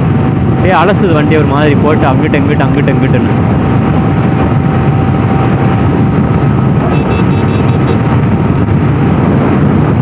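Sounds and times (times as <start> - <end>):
heavy wind on microphone: 0.0 - 10.0
motorcycle engine running: 2.9 - 10.0.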